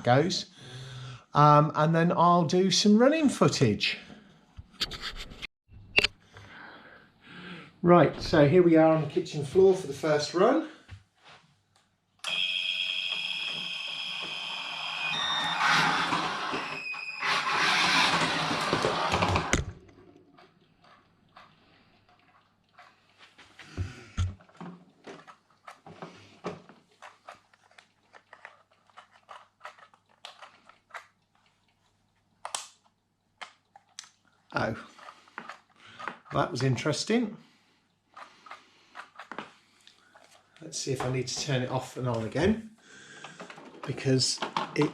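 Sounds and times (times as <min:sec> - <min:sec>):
electric motor and gearbox whining: 0:12.3 - 0:19.9.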